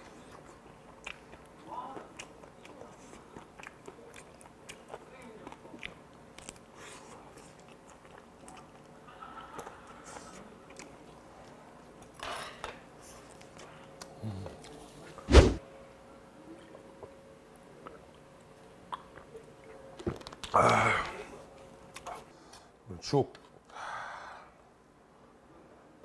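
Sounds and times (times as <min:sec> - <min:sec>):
person chewing: 0:00.0 - 0:11.6
faint steady hum: 0:00.0 - 0:26.0
loud thump: 0:15.3 - 0:15.6.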